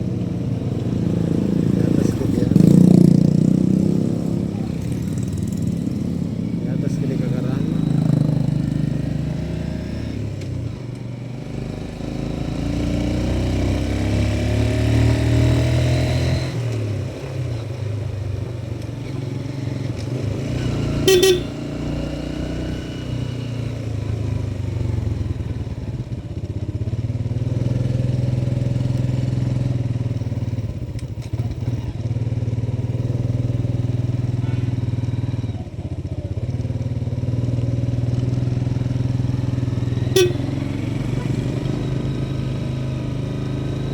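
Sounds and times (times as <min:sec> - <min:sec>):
motorcycle engine revving: 0:00.0 - 0:43.9
horn beep: 0:21.0 - 0:21.7, 0:40.1 - 0:41.0.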